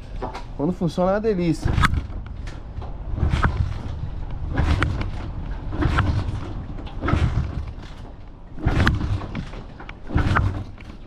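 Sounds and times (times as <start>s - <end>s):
dirt bike kick-start turning over: 1.6s - 11.0s.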